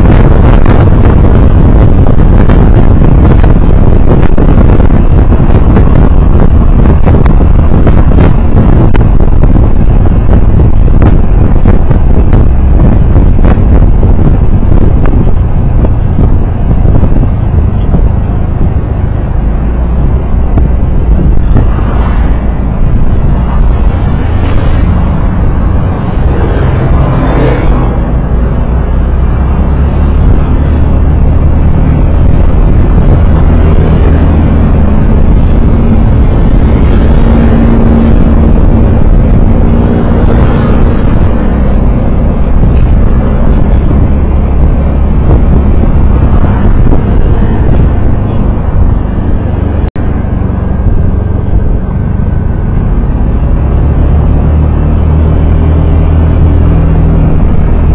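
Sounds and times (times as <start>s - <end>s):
passing traffic: 0.0s - 57.9s
road noise: 0.0s - 57.9s
vehicle engine hum: 0.0s - 57.9s.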